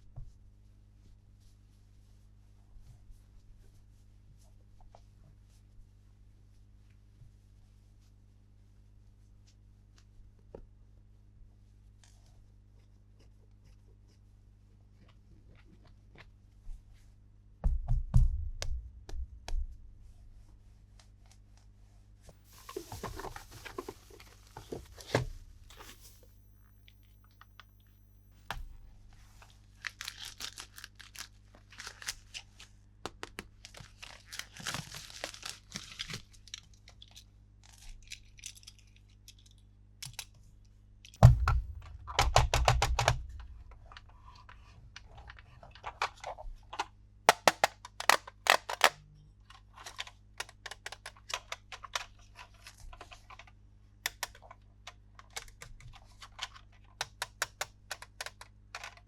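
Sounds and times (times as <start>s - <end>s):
heavy thumps: 17.6s - 20.2s, 41.2s - 44.7s
packaging crinkling and tearing: 29.6s - 32.7s, 33.4s - 39.6s, 47.3s - 49.0s
plastic toy parts clicking: 47.3s - 49.0s.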